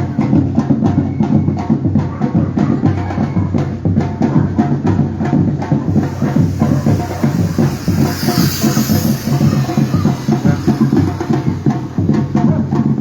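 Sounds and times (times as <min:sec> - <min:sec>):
percussion ensemble drumming: 0:00.0 - 0:13.0.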